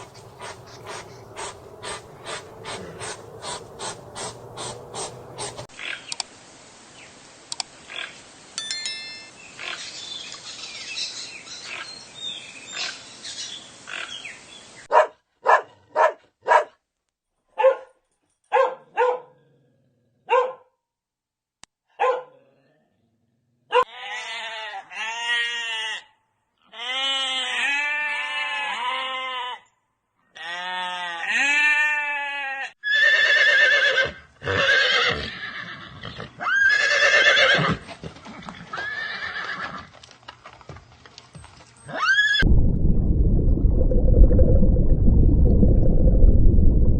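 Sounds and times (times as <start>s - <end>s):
loud high animal calls: 0.0s - 6.0s
rising and falling animal calls: 0.0s - 6.0s.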